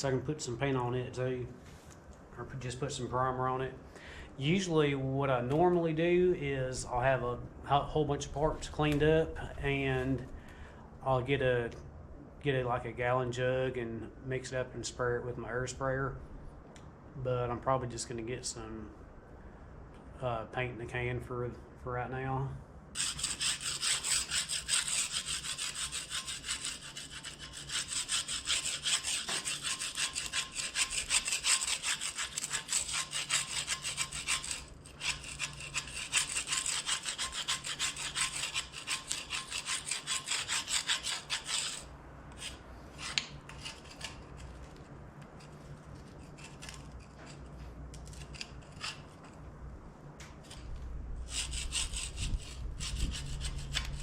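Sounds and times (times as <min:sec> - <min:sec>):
tool scraping cast iron: 0:23.0 - 0:49.5, 0:51.3 - 0:54.0.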